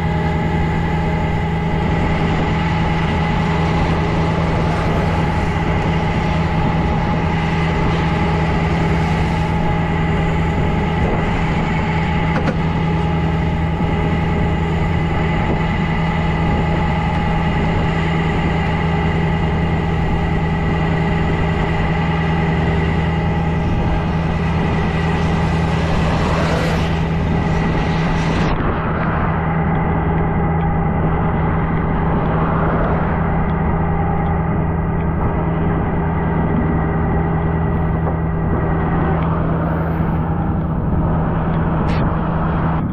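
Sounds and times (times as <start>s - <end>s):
truck engine idling: 0.0s - 28.8s.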